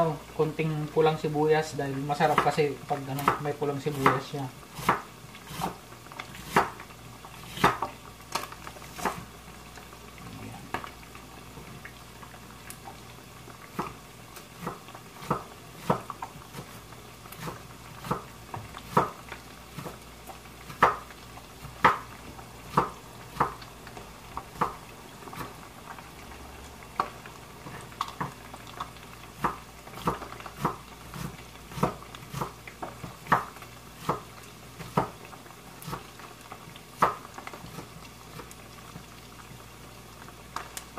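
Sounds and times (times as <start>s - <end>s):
knife chopping on wooden board: 4.8s - 5.8s, 6.4s - 6.8s, 7.5s - 7.9s, 14.6s - 16.1s, 18.9s - 19.2s, 22.7s - 23.6s, 29.4s - 32.6s, 33.3s - 34.3s.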